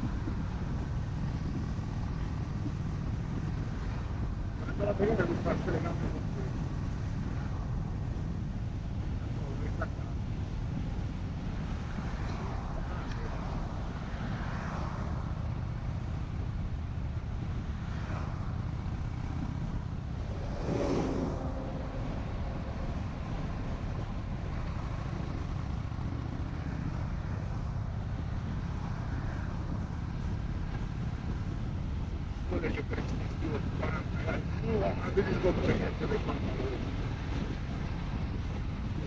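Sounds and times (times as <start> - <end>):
motorcycle engine running: 0.0 - 13.0, 15.2 - 35.1
wind rushing over microphone: 0.0 - 39.0
loud whoosh: 20.2 - 23.8.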